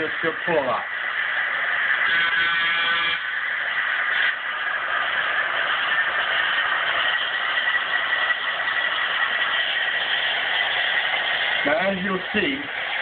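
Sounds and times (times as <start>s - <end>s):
high whine: 0.0s - 13.0s
model locomotive running: 0.0s - 13.0s.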